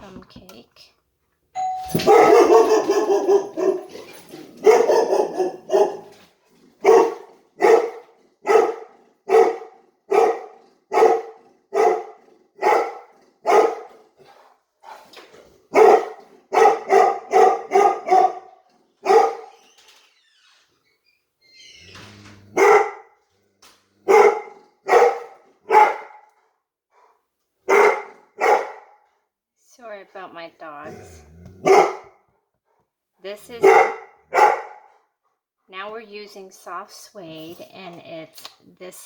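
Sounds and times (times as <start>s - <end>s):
dogs barking: 1.9s - 14.2s, 15.7s - 19.5s, 22.5s - 23.2s, 24.0s - 26.3s, 27.6s - 29.0s, 31.6s - 32.2s, 33.5s - 34.9s.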